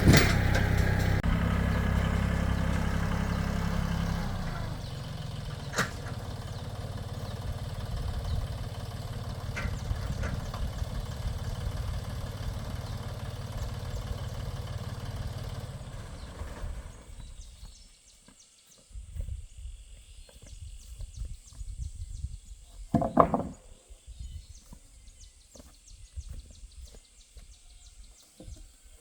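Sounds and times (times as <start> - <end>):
tractor engine running: 0.0 - 17.8.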